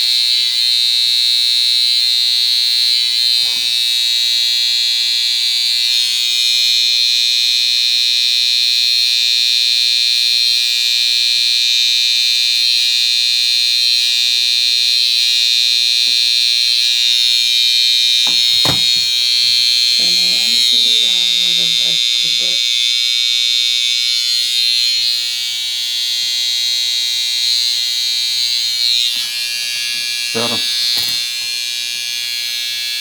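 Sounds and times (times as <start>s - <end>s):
electric hair trimmer buzzing: 0.0s - 9.4s, 12.4s - 33.0s
brief knock: 18.3s - 19.2s.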